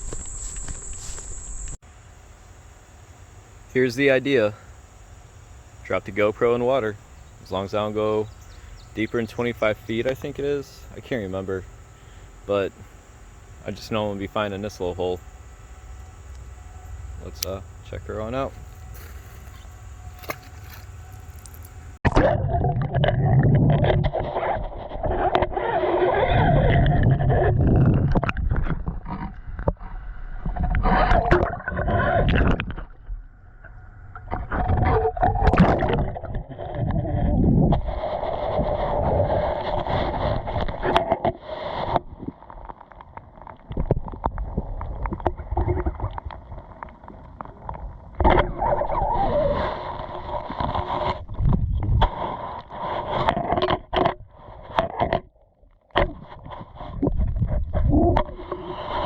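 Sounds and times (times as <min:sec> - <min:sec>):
muffled underwater water gurgling: 0:22.1 - 0:55.2.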